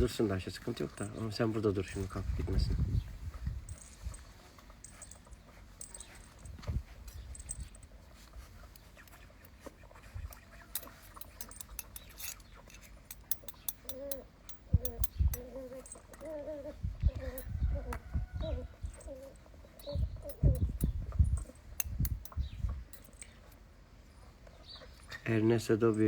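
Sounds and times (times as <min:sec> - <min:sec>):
rustling: 0:00.2 - 0:13.3
puppies whimpering: 0:13.8 - 0:20.8.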